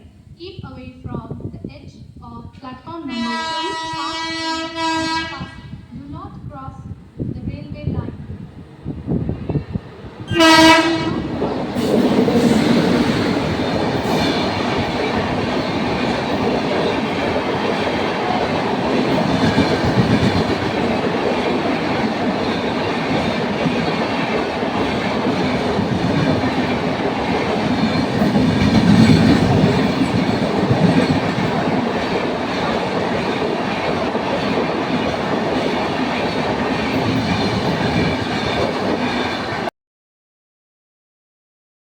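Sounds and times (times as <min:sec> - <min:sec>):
train running over rails: 0:02.1 - 0:39.7
train horn blast: 0:03.1 - 0:05.9, 0:10.3 - 0:11.4.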